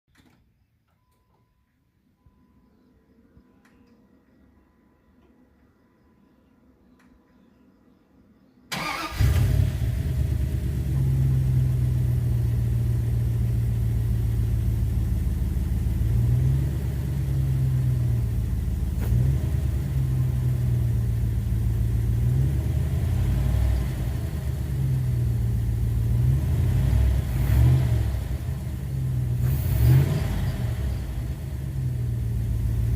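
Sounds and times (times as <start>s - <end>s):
engine starting and idling: 8.7s - 13.6s
engine revving: 8.7s - 32.9s.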